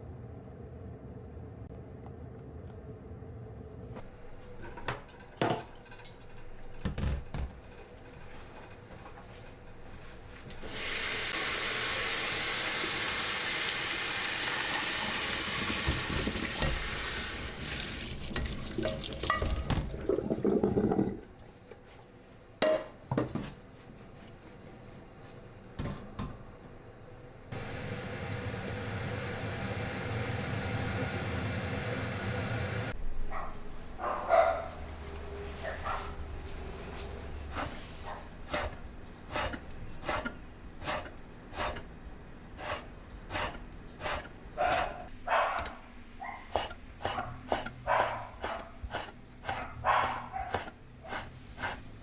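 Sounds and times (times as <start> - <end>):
kitchenware clinking: 4.4 - 9.8, 18.2 - 20.1
water running in sink: 10.6 - 21.4.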